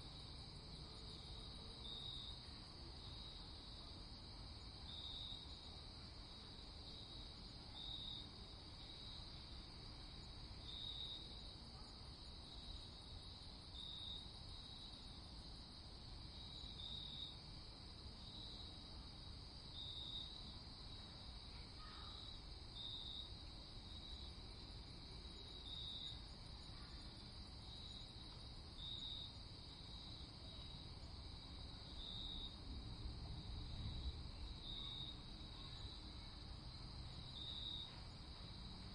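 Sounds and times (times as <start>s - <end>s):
crickets trilling: 0.0s - 38.9s
loud cricket chirp: 0.0s - 38.9s
faint low rumble: 32.5s - 34.6s.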